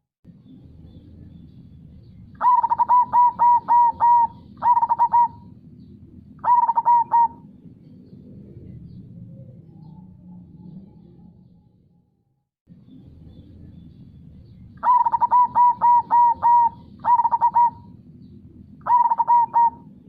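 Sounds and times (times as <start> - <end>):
dove cooing: 2.4 - 7.6, 14.8 - 18.0, 18.8 - 20.0.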